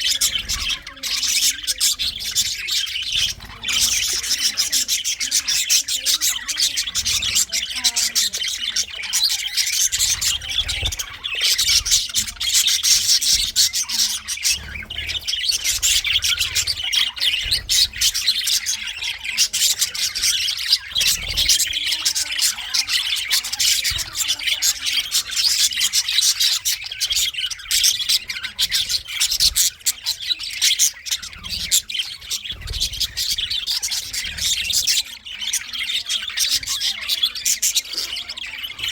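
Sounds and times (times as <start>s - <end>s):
budgerigars chattering: 0.0s - 38.9s.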